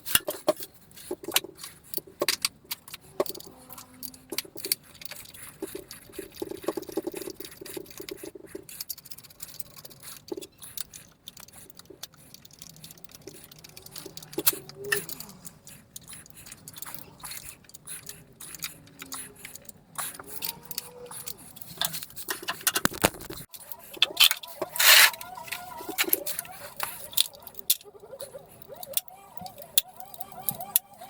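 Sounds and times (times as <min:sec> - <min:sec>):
metal engine parts clinking: 0:24.0 - 0:27.9.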